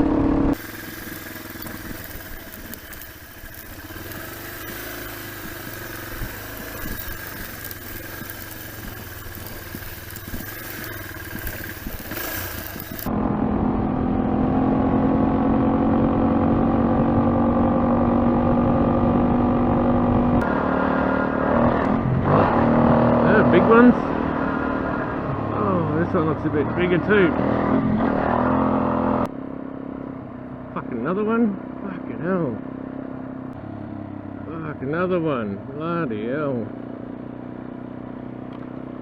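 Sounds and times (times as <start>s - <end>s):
motorcycle engine running: 0.0s - 26.0s, 36.5s - 39.0s
road noise: 0.0s - 39.0s
wind noise: 5.4s - 13.9s.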